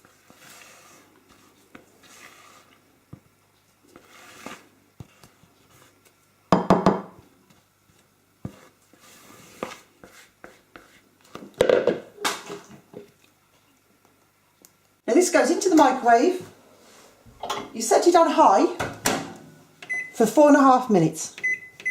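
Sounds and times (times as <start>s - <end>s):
spatula scraping a bowl: 0.0s - 2.9s, 3.9s - 6.0s, 8.4s - 11.0s
utensil knocking on bowl: 6.6s - 7.1s.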